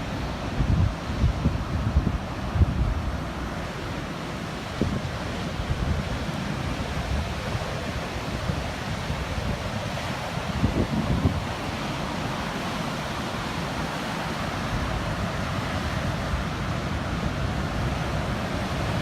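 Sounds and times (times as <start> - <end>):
ocean surf breaking on beach: 0.0 - 19.0
wind buffeting microphone: 0.1 - 13.8.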